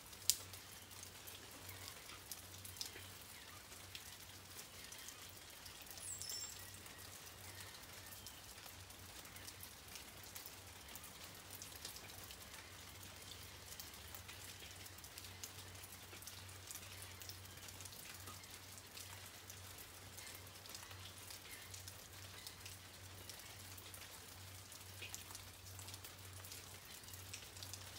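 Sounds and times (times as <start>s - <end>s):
light rain falling: 0.0s - 27.9s.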